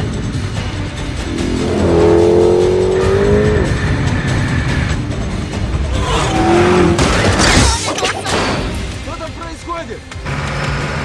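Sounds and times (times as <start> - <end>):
car engines running hard: 0.0 - 7.4, 10.0 - 11.0
film music score: 0.0 - 11.0.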